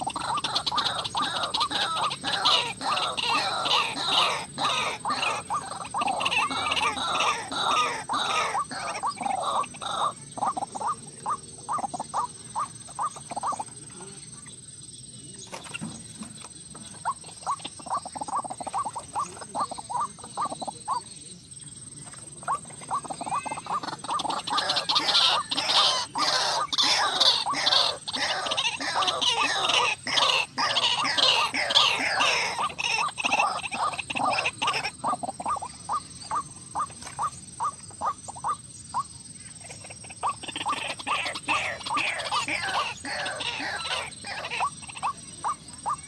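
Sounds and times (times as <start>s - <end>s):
waterhen calling: 0.0s - 14.1s, 15.5s - 21.2s, 22.3s - 46.0s.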